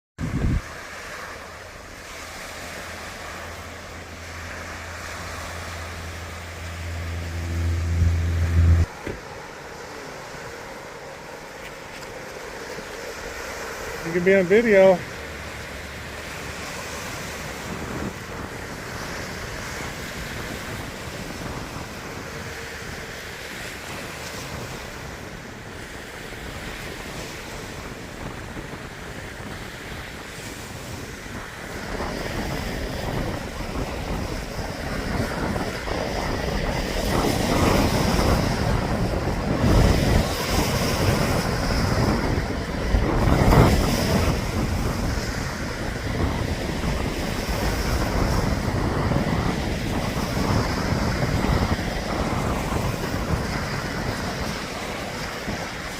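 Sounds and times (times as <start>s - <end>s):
waves crashing against shore: 0.2s - 55.9s
wind buffeting microphone: 0.2s - 55.9s.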